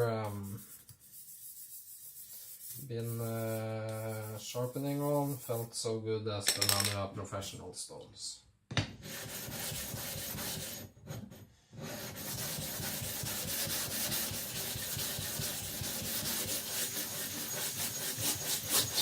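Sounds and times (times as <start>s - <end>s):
whetstone scraping rub: 12.0s - 19.0s.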